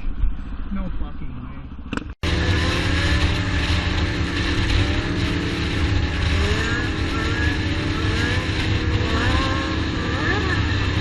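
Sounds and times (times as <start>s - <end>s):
road noise: 0.0s - 11.0s
vehicle engine accelerating: 2.2s - 11.0s.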